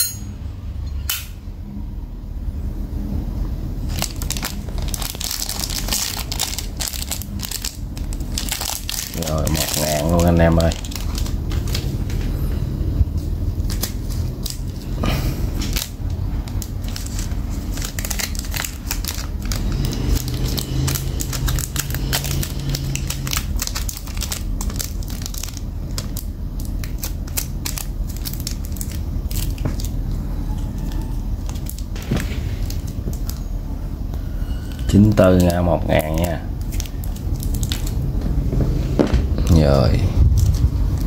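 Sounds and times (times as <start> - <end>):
steady low hum: 0.0 - 41.0
packaging crinkling and rustling: 3.8 - 12.5, 13.5 - 33.6, 34.6 - 41.0.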